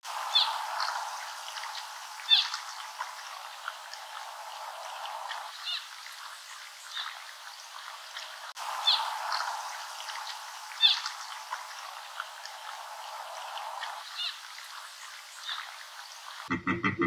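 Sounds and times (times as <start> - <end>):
steady hiss: 0.0 - 16.5
sharp high bird calls: 2.2 - 2.6, 10.8 - 11.1.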